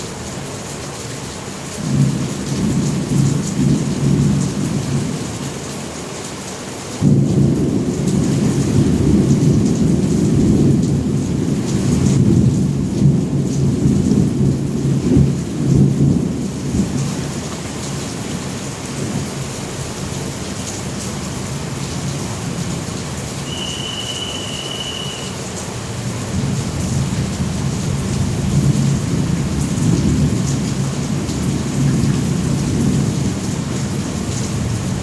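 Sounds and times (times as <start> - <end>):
steady rain: 0.0 - 35.0
thunder rumbling: 7.0 - 20.4, 21.2 - 35.0.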